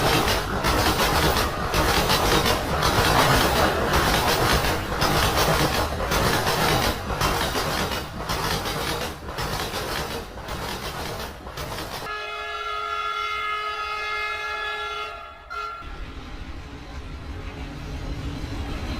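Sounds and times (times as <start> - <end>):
wheels knocking over track joints: 0.0 - 12.1
train rumbling on rails: 0.0 - 18.9
train horn blast: 12.1 - 16.0.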